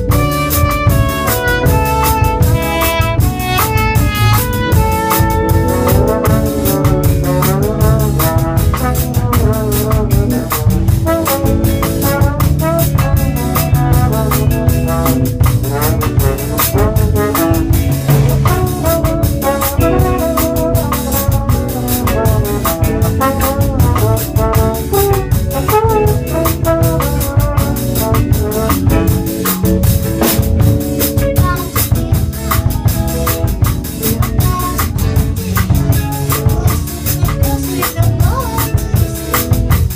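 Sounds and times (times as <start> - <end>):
drum kit steady beat: 0.0 - 39.9
sliding lead melody: 0.0 - 39.9
sustained low bass: 0.0 - 39.9.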